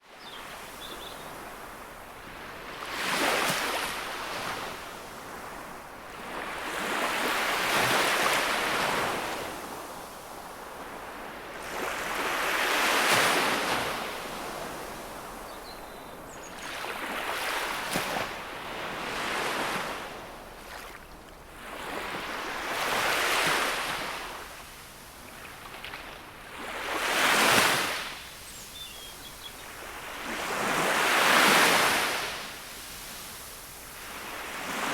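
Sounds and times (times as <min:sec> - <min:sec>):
sea waves breaking on shore: 0:00.6 - 0:15.6, 0:16.6 - 0:34.9.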